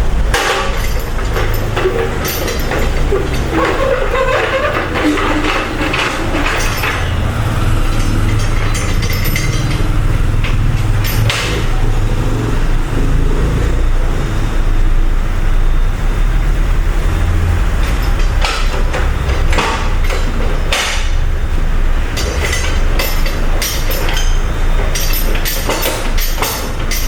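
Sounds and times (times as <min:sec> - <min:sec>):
steady low rumble: 0:00.0 - 0:03.3
metal tools clinking on engine parts: 0:00.0 - 0:12.5, 0:17.8 - 0:21.3, 0:22.0 - 0:27.0.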